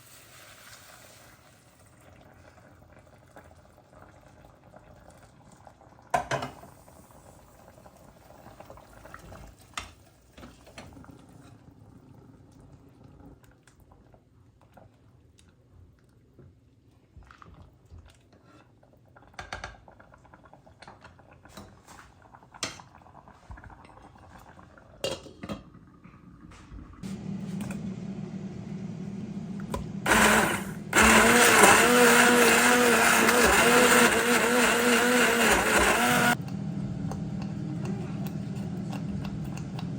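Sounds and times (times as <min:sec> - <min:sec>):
electric blender motor: 0:29.7 - 0:36.5.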